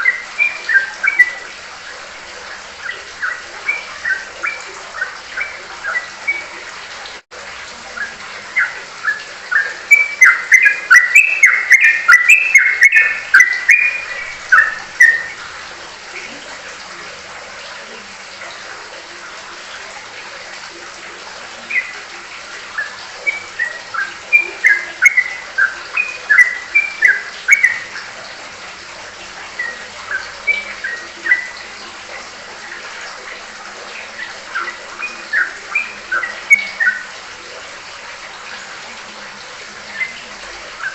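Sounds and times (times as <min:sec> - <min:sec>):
bird chirping in bursts: 0:00.0 - 0:06.7, 0:07.9 - 0:16.4, 0:21.5 - 0:28.2, 0:29.4 - 0:32.0, 0:33.9 - 0:37.2, 0:39.9 - 0:40.9.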